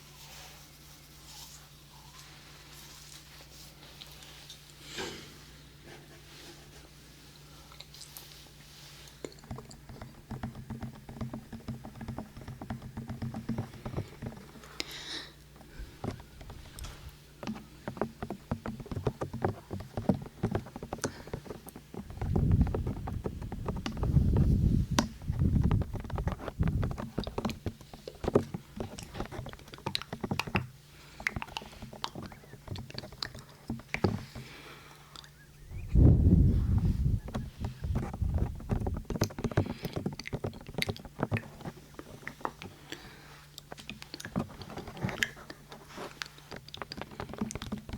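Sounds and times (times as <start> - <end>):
rapid fingertip tapping: 9.3 - 14.8, 15.9 - 34.5.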